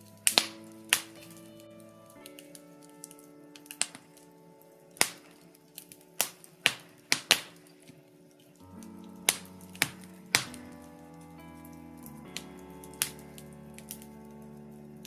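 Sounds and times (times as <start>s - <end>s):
soft background music: 0.0s - 15.0s
wood fire crackling: 0.0s - 15.0s
sharp pops from fire: 5.0s - 7.7s.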